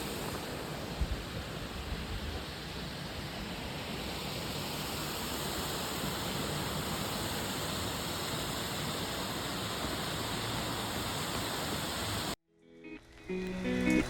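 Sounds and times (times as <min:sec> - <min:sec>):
waterfall rushing: 0:02.8 - 0:12.4.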